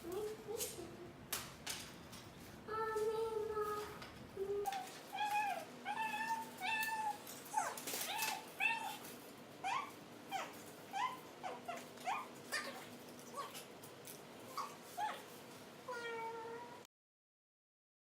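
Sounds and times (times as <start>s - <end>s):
cat meowing: 5.1s - 9.0s, 15.9s - 16.8s.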